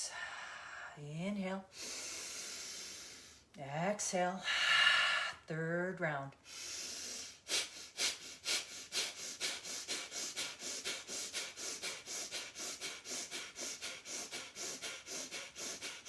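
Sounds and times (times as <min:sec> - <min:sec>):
forceful nasal exhalations: 0:01.7 - 0:03.5, 0:06.4 - 0:16.0.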